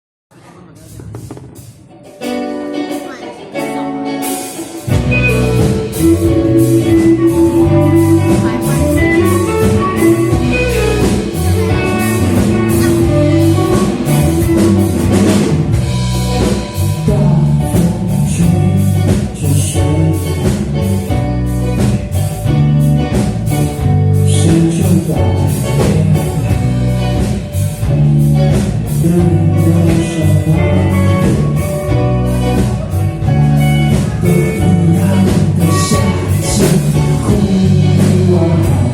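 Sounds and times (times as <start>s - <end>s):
rock band playing: 0.3s - 38.9s
person singing: 4.9s - 15.6s, 16.6s - 21.1s, 24.2s - 26.9s, 28.9s - 38.9s.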